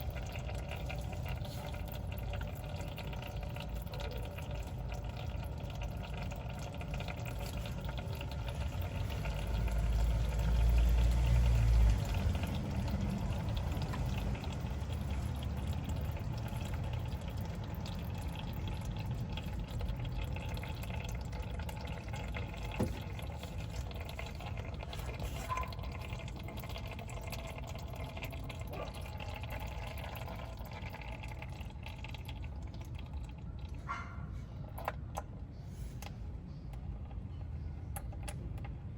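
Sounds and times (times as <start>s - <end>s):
oil pouring into a pan: 0.0s - 33.8s.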